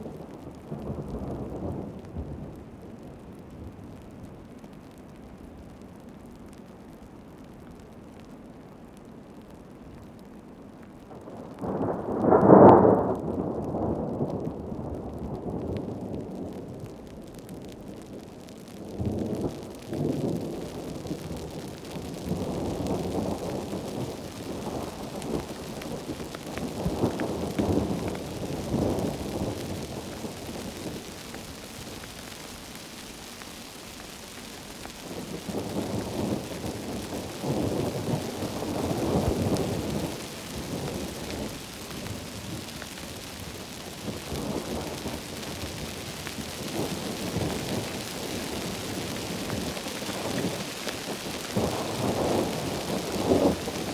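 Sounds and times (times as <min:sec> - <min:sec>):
rolling thunder: 0:11.2 - 0:16.4, 0:43.4 - 0:53.9
heavy rain hissing: 0:19.3 - 0:53.9.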